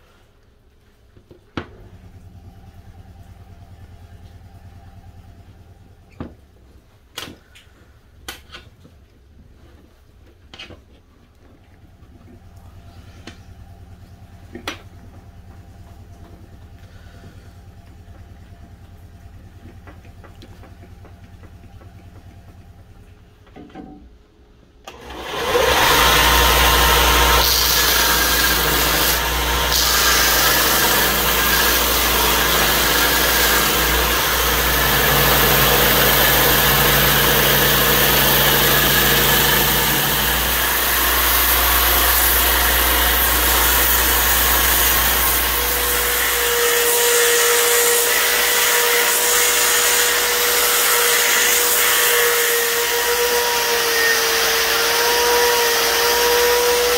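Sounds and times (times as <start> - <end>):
faint hum: 1.6 - 9.7
power tool whirring: 24.9 - 56.9
wood grinding on sanding disc: 25.0 - 56.9.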